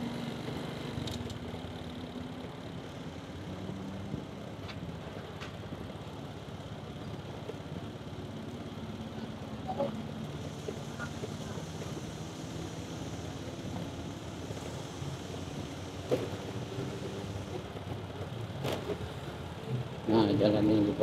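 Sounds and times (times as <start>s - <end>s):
road noise: 0.0s - 21.0s.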